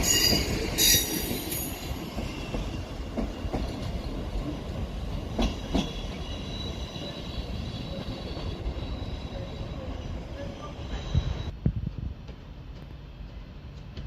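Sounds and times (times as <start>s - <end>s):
train wheels rumbling on track: 0.0s - 14.0s
high wheel squeal: 5.8s - 11.6s.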